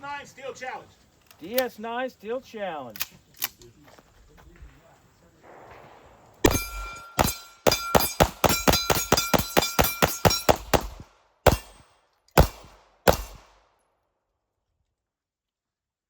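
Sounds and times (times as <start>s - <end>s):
pistol shots: 5.4s - 13.7s
metallic ringing: 6.4s - 10.7s.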